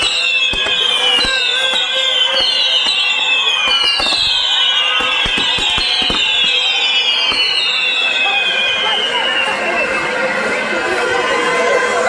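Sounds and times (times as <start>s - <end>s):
firework cracks: 0.0s - 7.8s
whistling fireworks: 0.0s - 12.0s.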